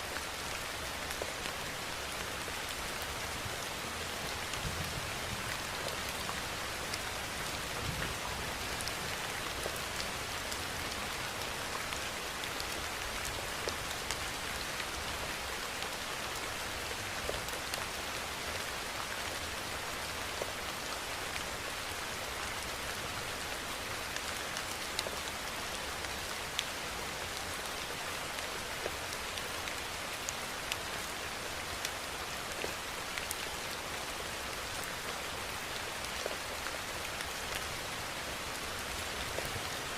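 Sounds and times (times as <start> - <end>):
steady rainfall: 0.0 - 39.9
raindrops ticking on a surface: 0.1 - 39.9.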